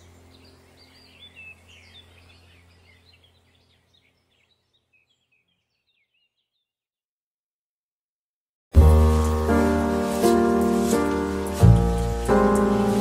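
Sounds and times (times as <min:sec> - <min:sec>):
low steady hum: 0:00.0 - 0:04.2
small birds chirping: 0:00.0 - 0:06.8, 0:09.2 - 0:13.0.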